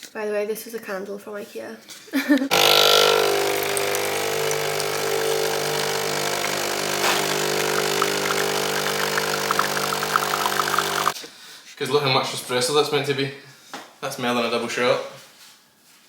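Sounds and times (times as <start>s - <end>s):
espresso machine crackling spits: 2.5s - 11.2s
espresso machine pump humming: 2.5s - 11.2s.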